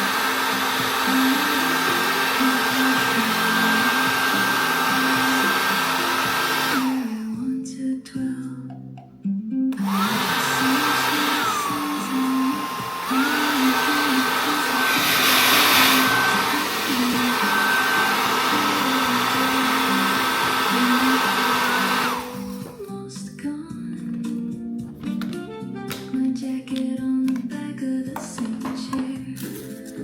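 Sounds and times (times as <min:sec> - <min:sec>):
hair dryer running: 0:00.0 - 0:07.6, 0:09.7 - 0:23.0
background music: 0:00.0 - 0:30.0.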